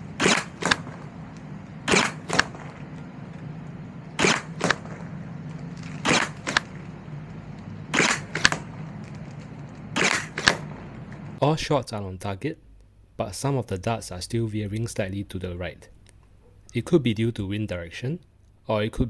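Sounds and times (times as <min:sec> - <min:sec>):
toy blaster firing pop: 0:00.2 - 0:01.0, 0:01.9 - 0:02.7, 0:04.2 - 0:05.0, 0:06.0 - 0:06.8, 0:07.9 - 0:08.7, 0:10.0 - 0:10.7
dart tapping cardboard target: 0:00.2 - 0:01.1, 0:01.9 - 0:02.7, 0:04.2 - 0:05.0, 0:06.1 - 0:06.8, 0:08.0 - 0:08.6, 0:10.0 - 0:10.7.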